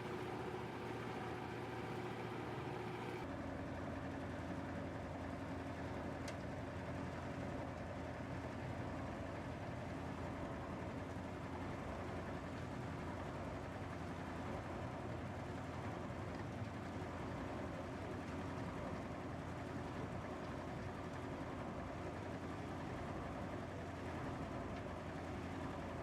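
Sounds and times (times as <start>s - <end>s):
industrial machinery drone: 0.0s - 3.2s.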